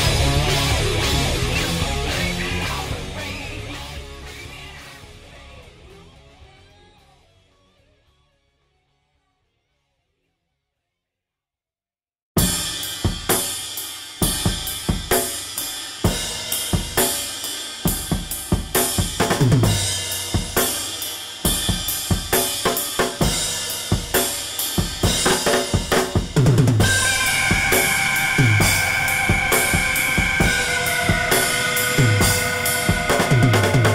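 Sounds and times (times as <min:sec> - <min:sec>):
drum kit beat: 0:00.0 - 0:03.2, 0:12.4 - 0:33.9
held tone: 0:26.8 - 0:33.9.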